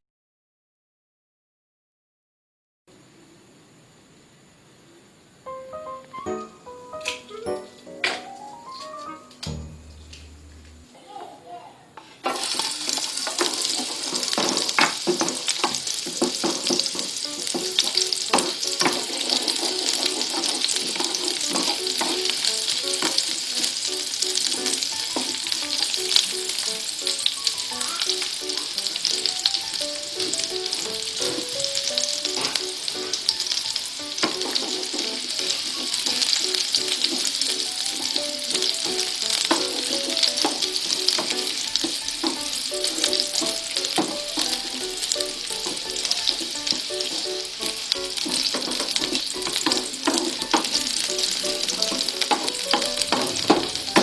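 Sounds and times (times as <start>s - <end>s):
food sizzling in hot oil: 12.2s - 54.0s.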